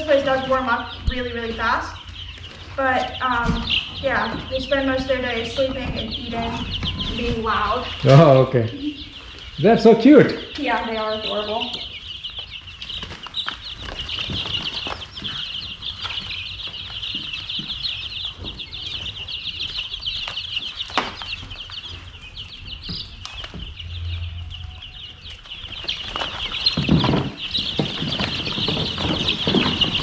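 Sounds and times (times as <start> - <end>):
chicks peeping: 0.0 - 30.0
rustling: 10.6 - 30.0.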